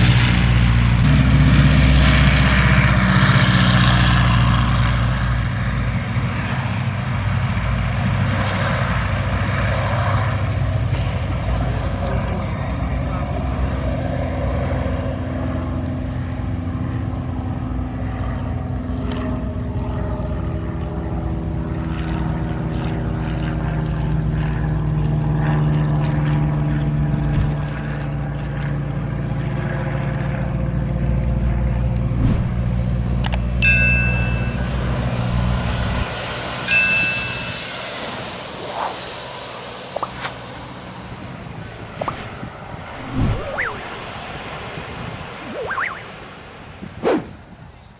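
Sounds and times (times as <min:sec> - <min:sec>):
propeller plane engine drone: 0:00.0 - 0:47.9
wind noise: 0:32.0 - 0:47.9.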